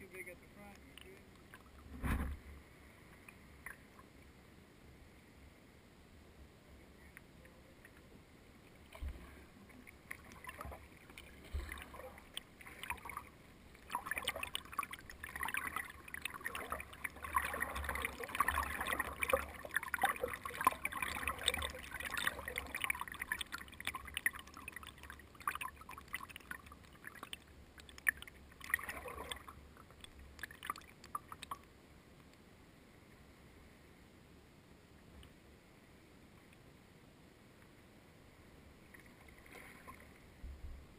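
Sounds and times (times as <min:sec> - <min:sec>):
water splashing around boat: 0:08.8 - 0:31.7.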